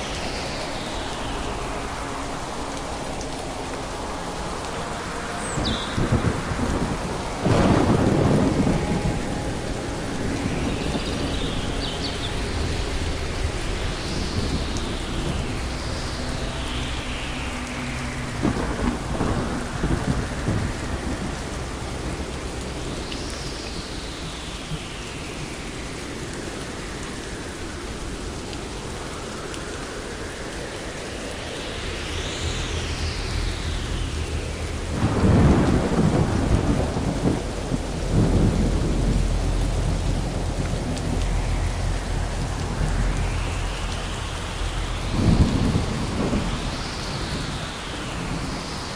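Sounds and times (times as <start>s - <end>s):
rain hiss: 0.0s - 48.9s
rolling thunder: 5.6s - 17.0s, 17.9s - 23.9s, 31.8s - 48.9s.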